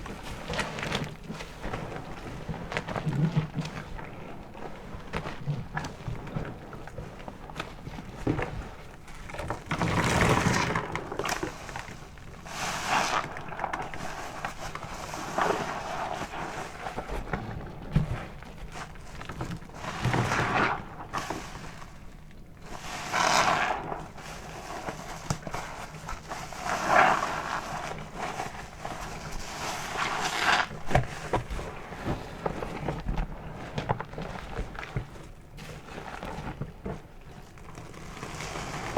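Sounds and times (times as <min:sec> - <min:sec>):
soapy sponge squelching: 0:08.0 - 0:35.2.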